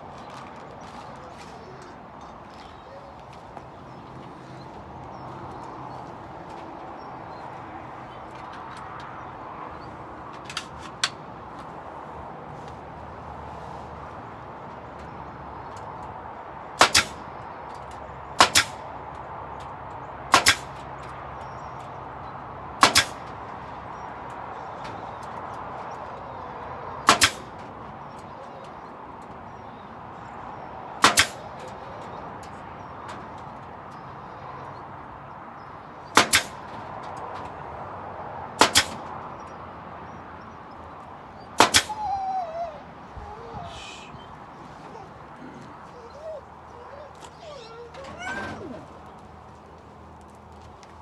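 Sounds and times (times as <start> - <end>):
nail gun double cracks: 16.8 - 17.2, 18.4 - 18.8, 20.3 - 20.9, 22.8 - 23.4, 27.1 - 27.6, 31.0 - 31.4, 36.2 - 36.7, 38.6 - 39.1, 41.6 - 42.0.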